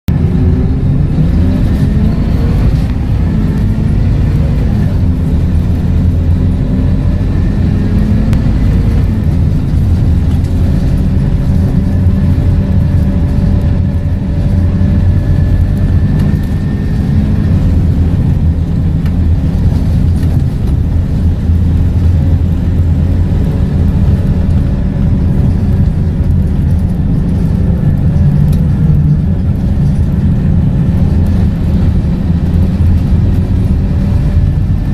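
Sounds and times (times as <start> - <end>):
bus diesel engine drone: 0.0 - 34.9.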